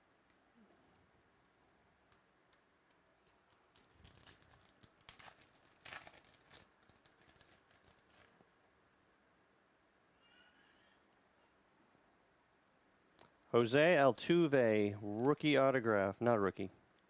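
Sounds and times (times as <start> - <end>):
cards and packaging rustling: 3.2 - 8.4.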